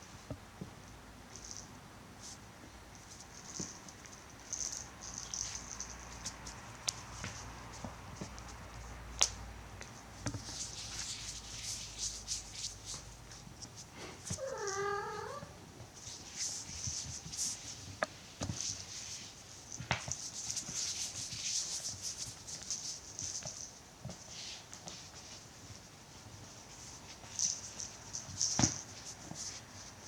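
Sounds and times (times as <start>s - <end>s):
cat meowing: 14.4s - 15.6s.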